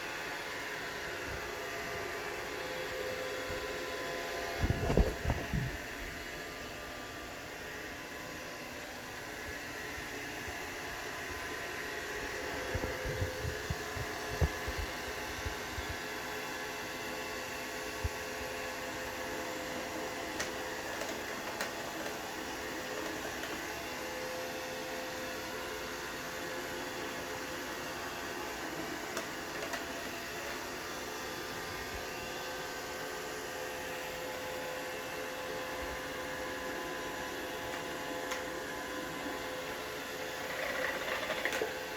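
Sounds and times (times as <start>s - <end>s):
robot vacuum motor whir: 17.0s - 41.9s.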